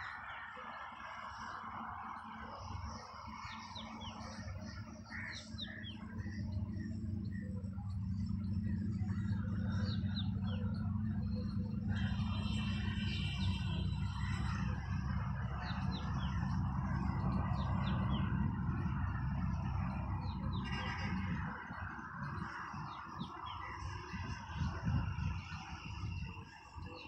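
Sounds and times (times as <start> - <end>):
small birds chirping: 2.6 - 21.3.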